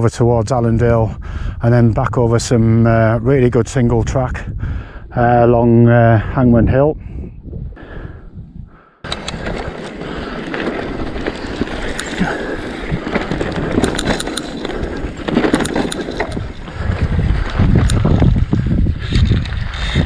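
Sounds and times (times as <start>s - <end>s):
bike tyres on dirt: 9.0s - 20.0s
bike rattling and knocking: 9.1s - 20.0s.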